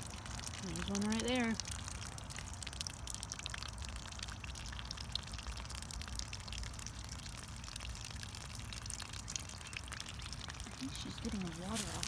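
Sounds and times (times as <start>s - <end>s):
water trickling from a spigot: 0.0s - 12.0s.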